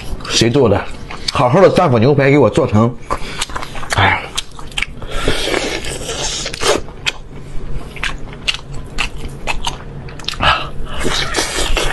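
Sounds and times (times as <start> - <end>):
chewing meat with wet mouth sounds: 3.0 - 10.5.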